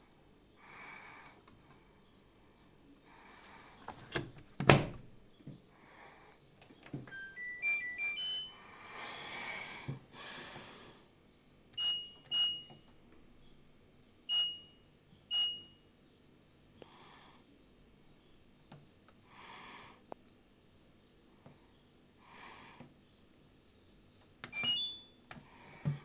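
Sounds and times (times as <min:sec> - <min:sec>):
button beeps: 0:07.1 - 0:08.5, 0:24.5 - 0:25.1
electronic beep tune: 0:07.1 - 0:08.6, 0:24.6 - 0:25.1.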